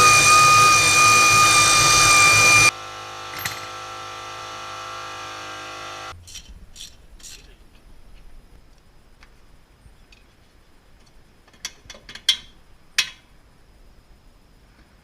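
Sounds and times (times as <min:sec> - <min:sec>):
power tool whining: 0:00.0 - 0:06.1.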